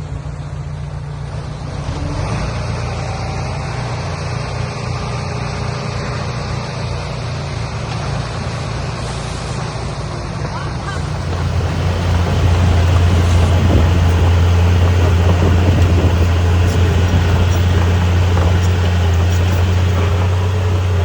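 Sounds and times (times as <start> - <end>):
heavy equipment engine rumbling: 10.8 - 21.0
loud rushing noise: 10.9 - 21.0.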